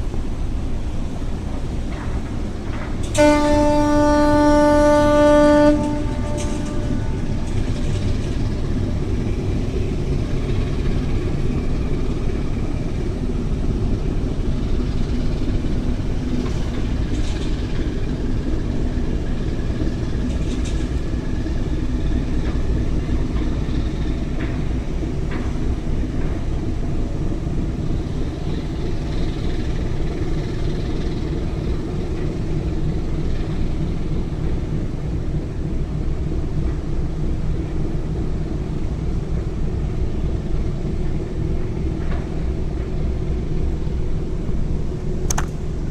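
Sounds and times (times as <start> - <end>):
ferry engines rumbling: 0.0 - 45.9.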